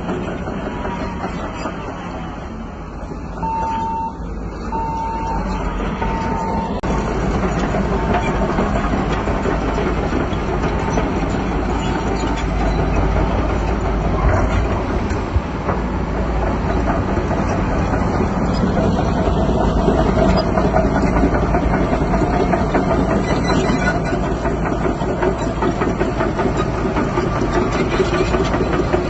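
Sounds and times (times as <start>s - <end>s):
bulldozer engine rumbling: 0.0s - 29.0s
clattering tracks: 0.0s - 29.0s
reversing alarm beeping: 3.4s - 6.9s.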